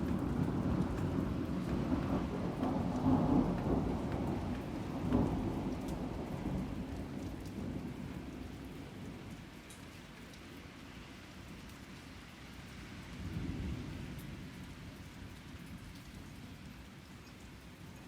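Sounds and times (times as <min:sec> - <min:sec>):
thunder rumbling: 0:00.0 - 0:08.3
rain pattering: 0:00.0 - 0:18.0.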